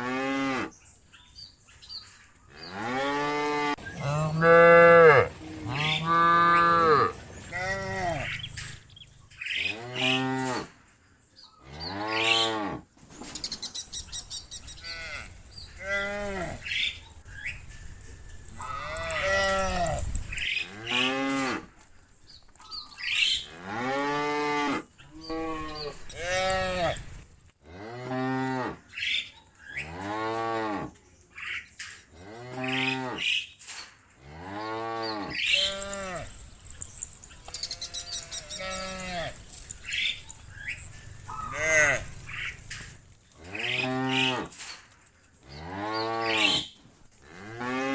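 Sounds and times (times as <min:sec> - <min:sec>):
cows mooing: 0:02.5 - 0:08.8, 0:09.6 - 0:10.8, 0:14.8 - 0:16.9, 0:18.5 - 0:21.7, 0:23.4 - 0:28.9, 0:32.2 - 0:33.4, 0:34.2 - 0:36.8, 0:37.5 - 0:44.6, 0:45.5 - 0:47.9.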